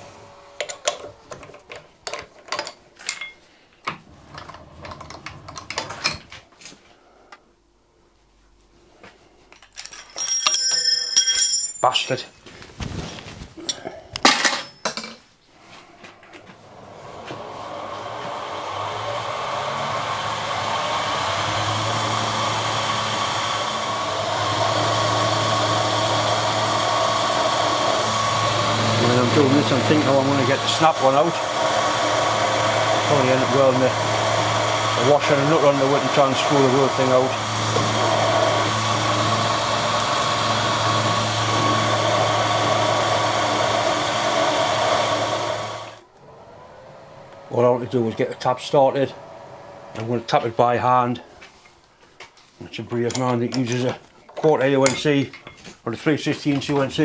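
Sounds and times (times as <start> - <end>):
electric motor whirring: 16.6 - 51.2.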